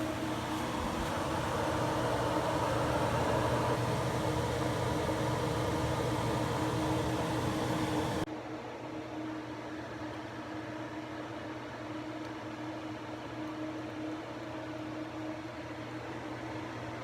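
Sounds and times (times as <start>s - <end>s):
low engine drone: 0.0s - 8.3s.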